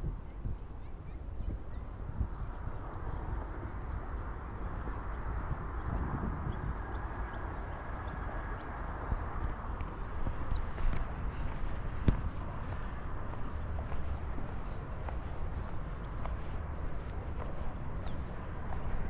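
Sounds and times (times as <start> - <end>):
background murmur: 9.4 - 19.0.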